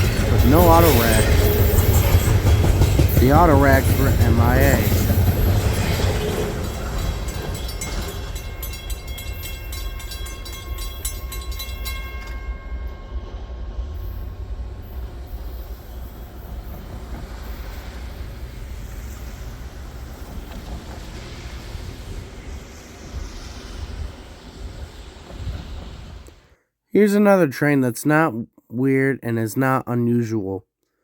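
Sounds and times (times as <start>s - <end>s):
high steady ringing: 0.0s - 20.2s
train cars rumbling: 0.0s - 26.5s.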